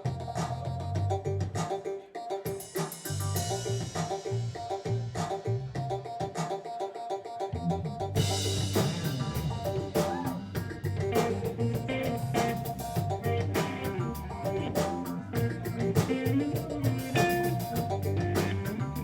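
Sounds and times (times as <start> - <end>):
drum kit beat: 2.4 - 6.6, 8.1 - 19.0
guitar lines: 8.4 - 19.0.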